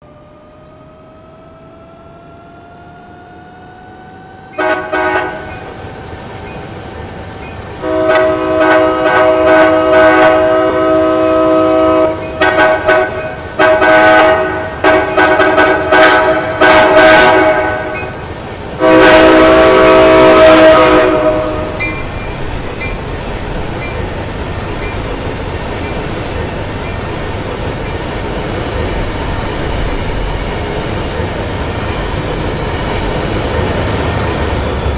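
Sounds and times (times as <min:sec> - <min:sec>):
train rumbling by: 0:00.0 - 0:34.9
train air horn blasts: 0:04.6 - 0:05.5, 0:07.8 - 0:18.0, 0:18.8 - 0:22.0.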